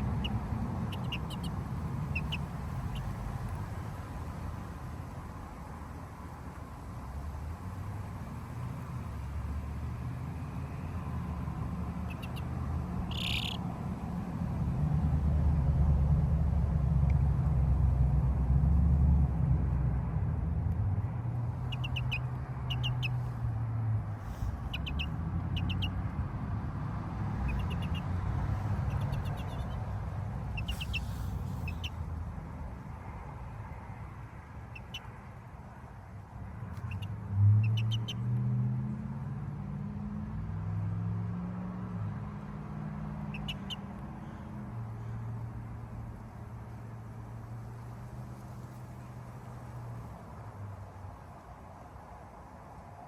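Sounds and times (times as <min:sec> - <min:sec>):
high bird chirps: 0:00.0 - 0:03.1, 0:12.0 - 0:12.5, 0:13.1 - 0:13.6, 0:21.6 - 0:23.2, 0:24.6 - 0:26.0, 0:27.4 - 0:28.1, 0:28.8 - 0:29.8, 0:30.5 - 0:32.0, 0:34.7 - 0:35.1, 0:36.8 - 0:38.2, 0:43.3 - 0:43.8
long high bird call: 0:00.0 - 0:03.2, 0:13.1 - 0:13.6, 0:30.5 - 0:32.0.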